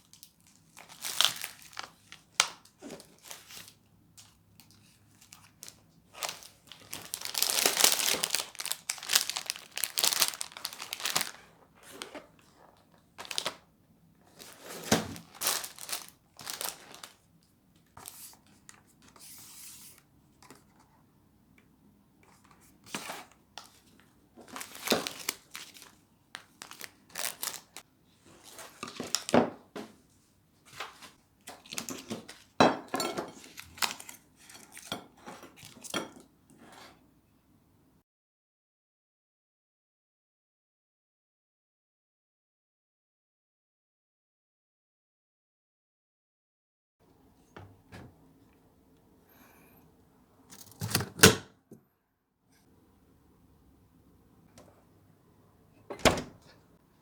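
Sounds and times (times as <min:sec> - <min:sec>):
packaging crinkling and tearing: 0:00.0 - 0:13.6, 0:14.3 - 0:17.3, 0:24.4 - 0:27.8, 0:28.4 - 0:29.4, 0:33.4 - 0:34.2.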